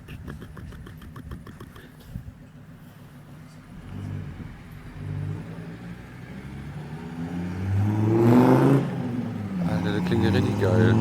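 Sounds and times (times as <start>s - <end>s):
diesel engine revving: 3.4s - 11.0s.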